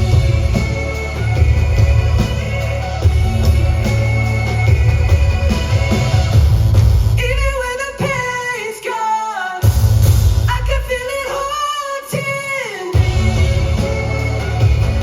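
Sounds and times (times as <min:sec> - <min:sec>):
man singing: 0:00.0 - 0:06.5, 0:07.2 - 0:09.7, 0:10.5 - 0:15.0
live band playing: 0:00.0 - 0:07.3, 0:13.0 - 0:15.0.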